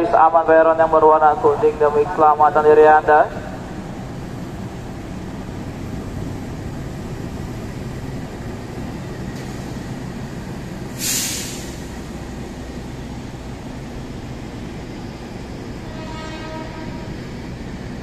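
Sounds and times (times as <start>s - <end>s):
train coaches rolling on rails: 0.0s - 18.0s
train brakes air hiss: 10.9s - 12.1s.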